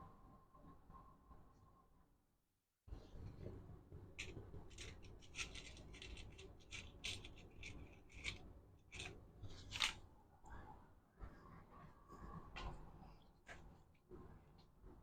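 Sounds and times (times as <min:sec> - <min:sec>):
hand tools snipping wire: 0:04.2 - 0:09.1.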